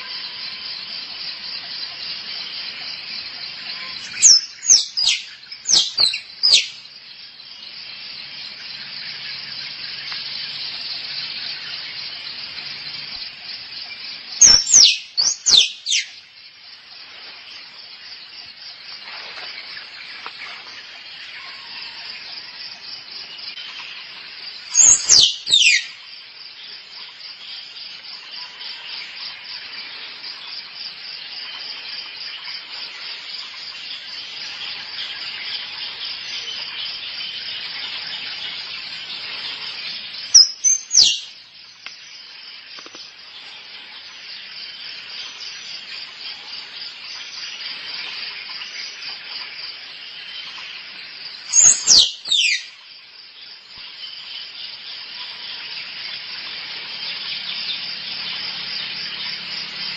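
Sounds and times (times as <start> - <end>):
pulsing insect chorus: 0.0 - 59.9
squirrel calls: 3.7 - 6.8, 14.4 - 16.1, 24.7 - 26.0, 40.3 - 41.3, 51.5 - 52.7.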